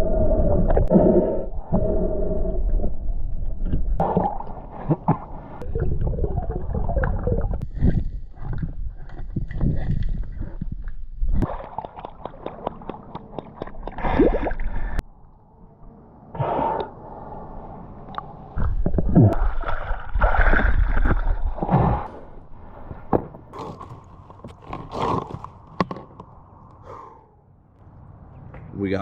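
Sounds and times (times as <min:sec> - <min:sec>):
water sloshing around a swimmer: 0:06.4 - 0:15.0.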